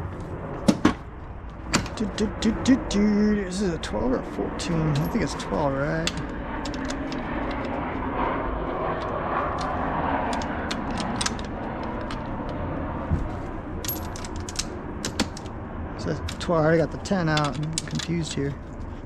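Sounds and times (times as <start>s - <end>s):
steady background noise: 0.0s - 19.0s
hand tools clicking and clinking: 4.9s - 5.3s, 13.8s - 15.5s, 17.3s - 18.2s.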